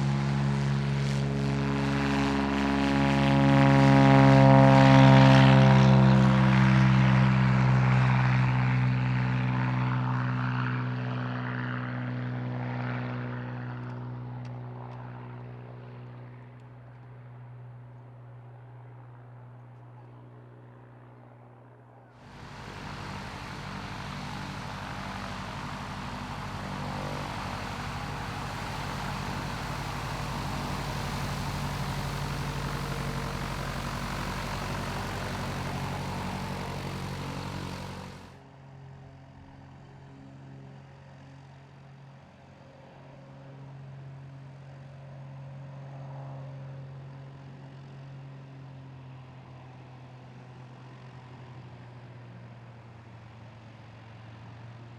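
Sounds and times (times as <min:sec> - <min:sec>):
steady engine hum: 0:00.0 - 0:39.2
propeller aircraft engine: 0:00.0 - 0:54.9.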